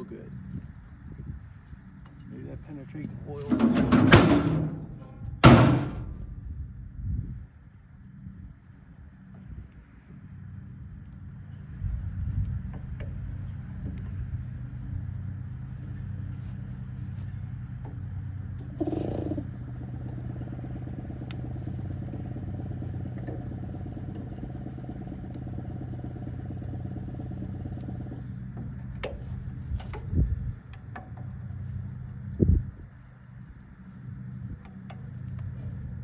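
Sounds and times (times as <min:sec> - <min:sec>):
engine droning: 0:00.0 - 0:07.0, 0:07.7 - 0:36.0
short clatter: 0:03.4 - 0:06.4.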